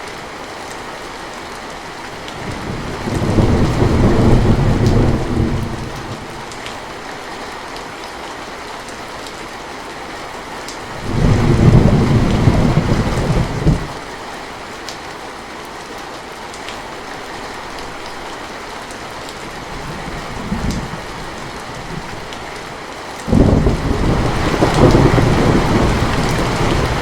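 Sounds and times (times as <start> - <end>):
steady rain: 0.0 - 27.0
thunder rumbling: 2.4 - 6.6, 10.9 - 14.0, 19.7 - 22.6, 23.3 - 27.0.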